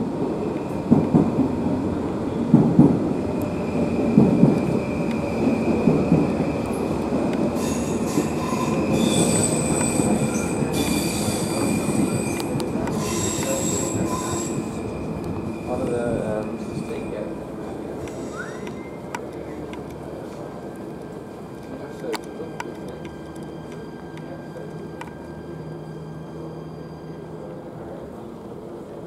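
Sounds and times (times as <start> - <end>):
rail vehicle on track: 0.0 - 29.0
wheel squeal: 7.6 - 14.8, 18.1 - 19.1.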